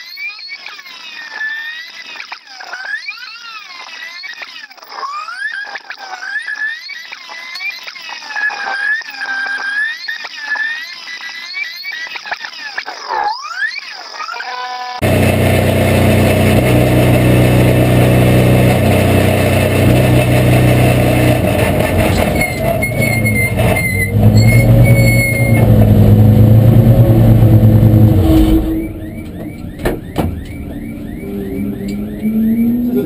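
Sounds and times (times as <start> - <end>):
race car engine at low revs: 15.0 - 33.0.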